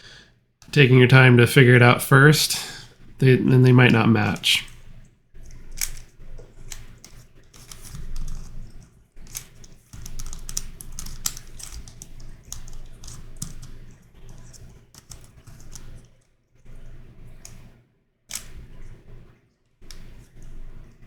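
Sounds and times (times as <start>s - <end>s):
plastic puzzle pieces clicking: 5.6s - 8.6s, 9.2s - 13.7s, 14.4s - 16.0s, 18.3s - 18.6s.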